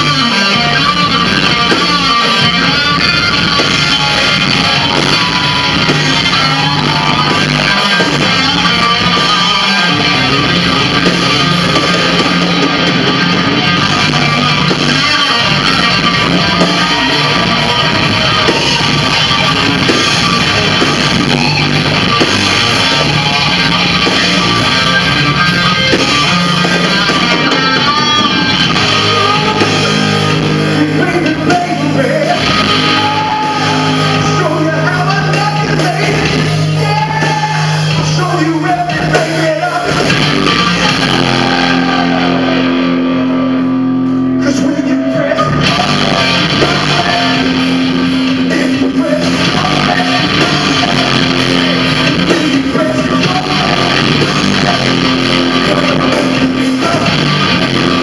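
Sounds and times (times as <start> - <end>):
bass guitar: 0.0 - 58.0
electric guitar: 0.0 - 58.0
person singing: 24.3 - 43.6, 44.3 - 58.0.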